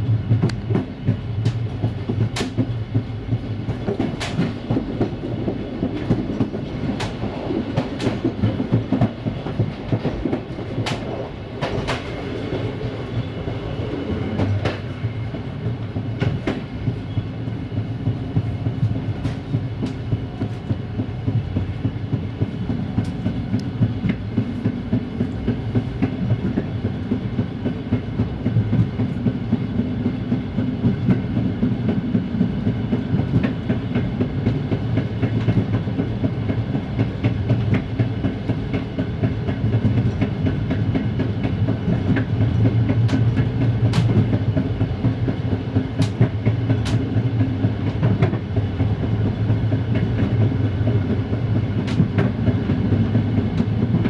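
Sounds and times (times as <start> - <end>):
low rumble of train running gear: 0.0 - 54.0.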